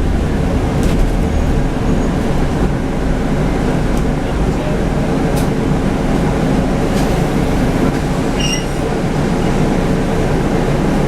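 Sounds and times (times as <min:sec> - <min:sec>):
bus diesel engine rumble: 0:00.0 - 0:11.0
high squeak: 0:08.4 - 0:08.9.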